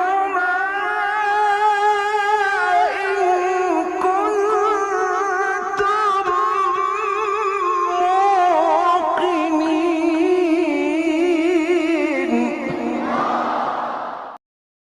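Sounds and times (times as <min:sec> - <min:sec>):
man chanting recitation: 0:00.0 - 0:13.3.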